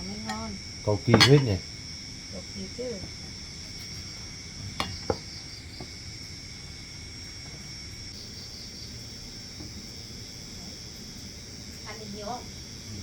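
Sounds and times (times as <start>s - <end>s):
crickets chirping: 0.0s - 13.0s
utensils clinking against bowls: 1.0s - 1.6s, 4.8s - 5.2s.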